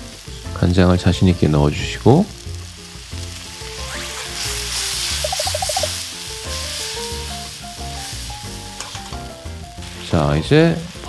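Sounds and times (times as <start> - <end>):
oysters sizzling in oil: 0.0 - 11.0
sauce pouring into pan: 0.0 - 11.0
pan being shaken: 5.0 - 6.0.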